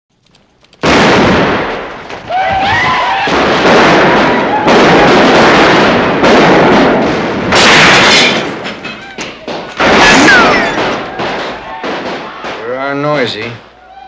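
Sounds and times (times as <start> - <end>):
loud noise bursts: 0.8 - 8.6.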